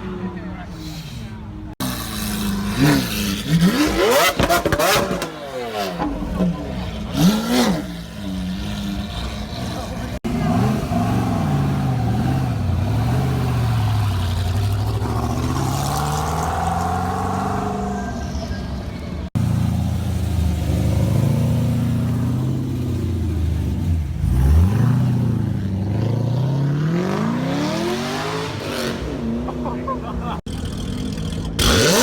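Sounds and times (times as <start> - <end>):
car engines revving: 0.0 - 32.0.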